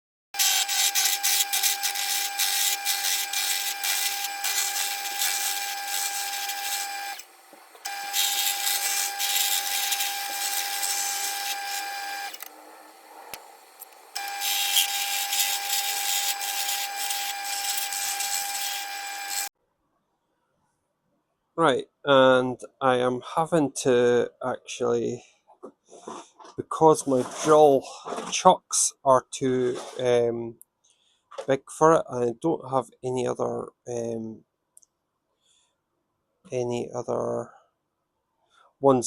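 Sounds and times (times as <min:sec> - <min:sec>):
turning tool cutting wood: 0:00.4 - 0:19.5
wood lathe motor running: 0:00.4 - 0:19.5.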